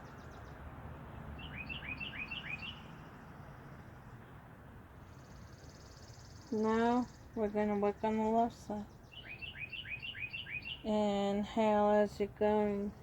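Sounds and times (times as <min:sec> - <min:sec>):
steady background hiss: 0:02.8 - 0:09.4
small bird chirping: 0:08.9 - 0:10.9.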